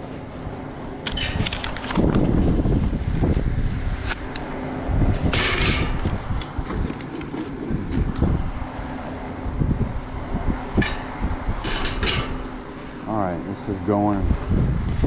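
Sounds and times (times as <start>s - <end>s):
steady low hum: 0.0s - 15.0s
handling clatter and knocks: 5.2s - 8.2s, 10.8s - 12.5s.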